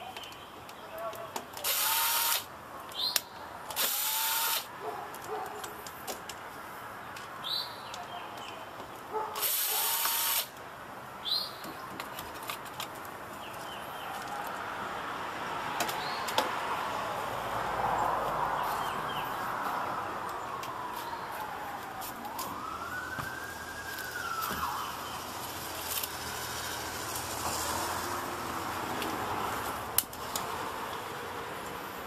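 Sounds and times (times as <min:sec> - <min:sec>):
cordless electric screwdriver running: 0:01.6 - 0:02.5, 0:03.8 - 0:04.7, 0:09.4 - 0:10.5.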